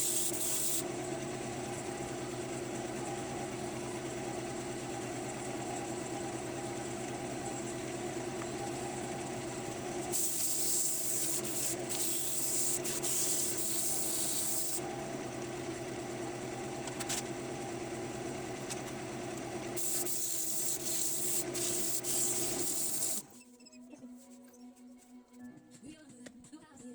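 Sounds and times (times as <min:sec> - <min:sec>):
wood lathe humming: 0:00.0 - 0:23.3
abrasive hissing on spinning wood: 0:10.1 - 0:14.8.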